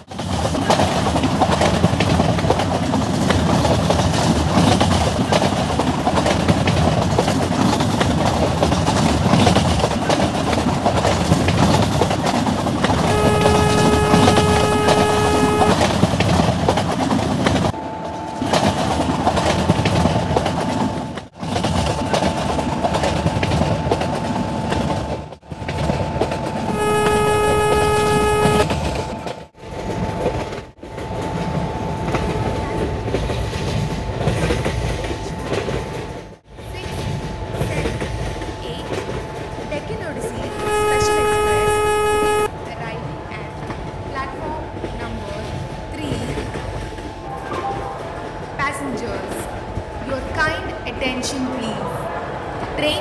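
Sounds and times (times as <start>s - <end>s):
train wheels clattering on rails: 0.0s - 42.3s, 43.3s - 51.8s
locomotive horn blasts: 12.9s - 16.1s, 26.6s - 29.2s, 40.4s - 42.5s
steady high whine: 40.2s - 42.5s.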